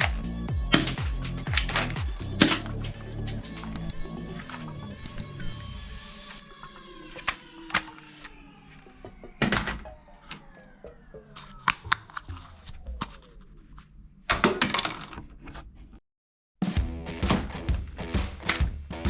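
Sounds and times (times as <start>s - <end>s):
toy guns clicking and snapping: 2.8s - 4.1s, 5.1s - 5.4s
faint falling tones: 5.1s - 13.6s.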